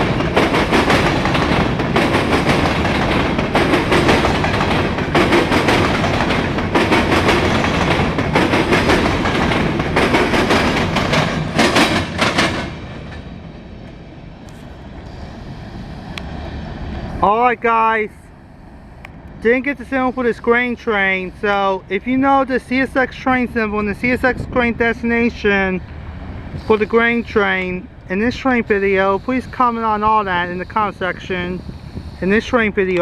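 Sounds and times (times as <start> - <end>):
freight train wheels clicking: 0.0 - 15.2, 25.8 - 33.0
low train rumble: 0.0 - 33.0.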